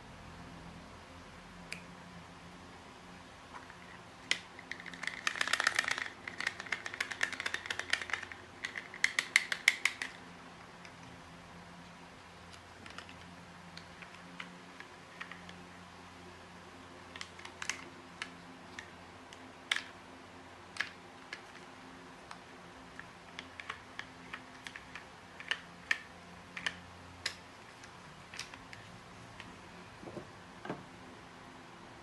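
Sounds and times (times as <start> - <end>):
faint steady hum: 0.0 - 32.0
small hard objects clicking: 4.3 - 10.2.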